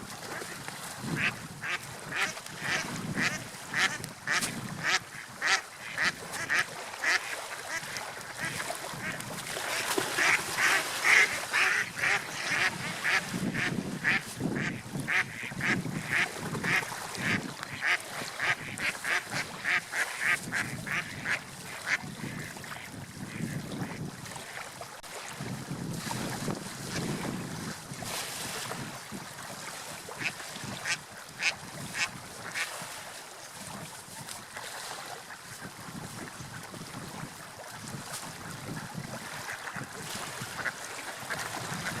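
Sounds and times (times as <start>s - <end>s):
ducks quacking: 1.2s - 22.6s, 23.3s - 24.0s, 30.2s - 32.8s.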